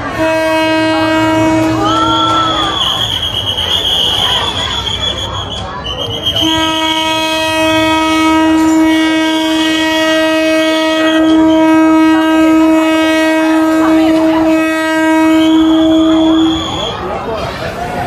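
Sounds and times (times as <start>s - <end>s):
train horn blast: 0.0s - 3.3s, 6.2s - 16.9s.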